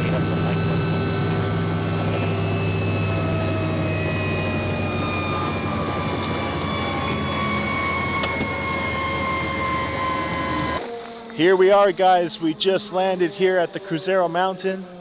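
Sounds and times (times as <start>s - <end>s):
low hum: 0.0s - 10.9s
helicopter turbine whine: 0.0s - 15.0s.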